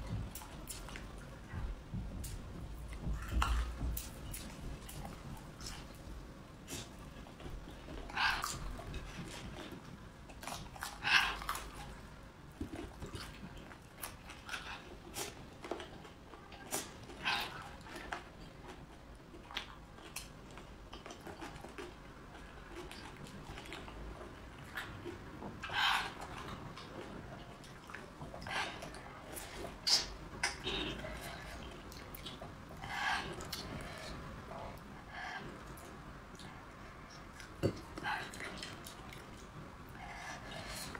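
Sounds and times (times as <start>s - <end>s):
wet mouth clicks and chewing: 0.0s - 6.1s, 6.7s - 34.2s, 35.6s - 40.9s.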